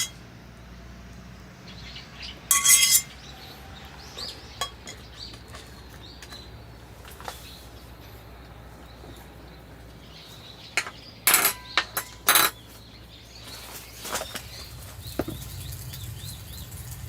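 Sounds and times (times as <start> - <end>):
cookware clinking: 2.5 - 3.1, 10.8 - 12.6.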